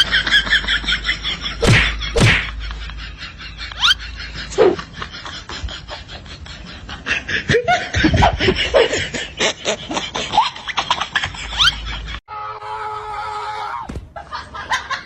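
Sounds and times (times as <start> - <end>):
people laughing: 0.0 - 12.2, 14.1 - 15.0.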